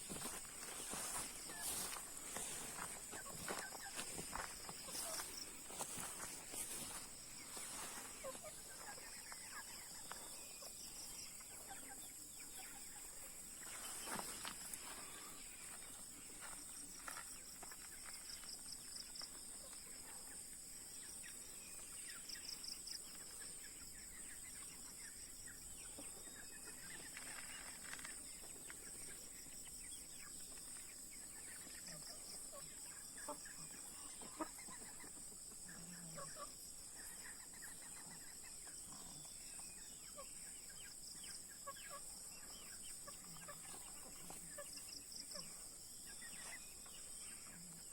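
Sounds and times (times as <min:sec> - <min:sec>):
chickens clucking softly: 0:30.3 - 0:47.9.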